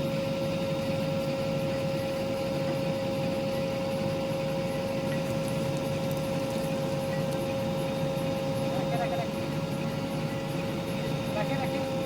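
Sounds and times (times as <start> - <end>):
heavy machine engine running: 0.0 - 12.0.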